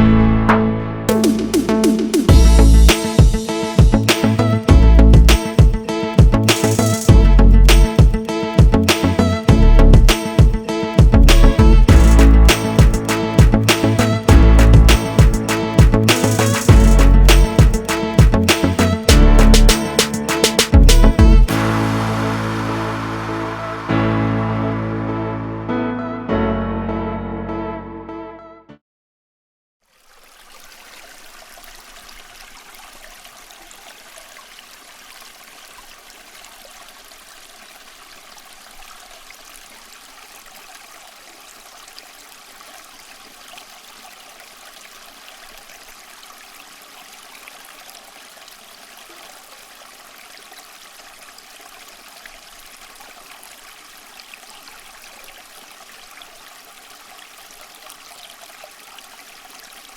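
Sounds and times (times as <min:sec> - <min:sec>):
fountain water trickling and splashing: 0:21.5 - 0:24.0, 0:29.8 - 0:59.9.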